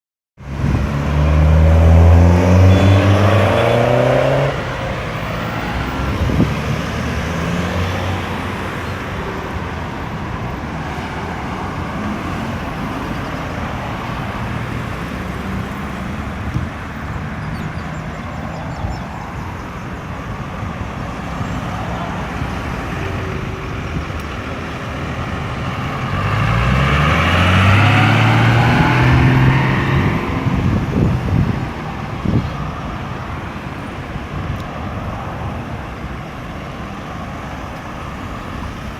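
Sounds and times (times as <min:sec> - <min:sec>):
vehicle accelerating: 0:00.4 - 0:09.4, 0:21.1 - 0:33.2
steady traffic noise: 0:00.4 - 0:38.9.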